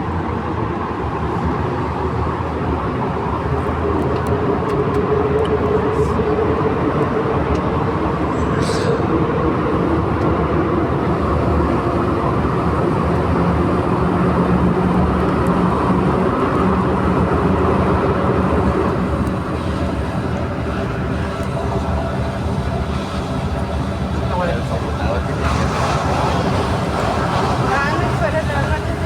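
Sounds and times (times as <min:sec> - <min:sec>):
train rumble inside car: 0:00.0 - 0:29.0
train motor hum: 0:02.2 - 0:29.0.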